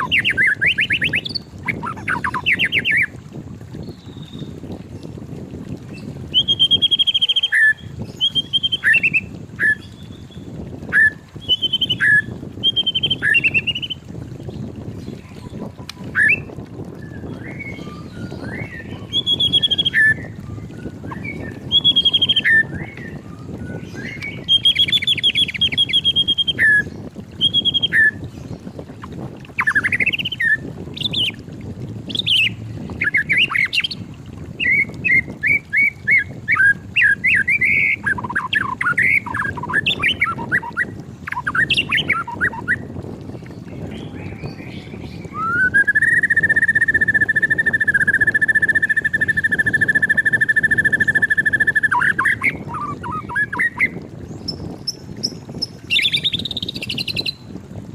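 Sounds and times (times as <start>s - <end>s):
bird singing whistled phrases: 0.0s - 3.1s, 6.3s - 14.0s, 15.4s - 28.2s, 34.6s - 42.8s, 43.9s - 54.0s, 55.9s - 57.4s
low background rumble: 0.0s - 48.1s.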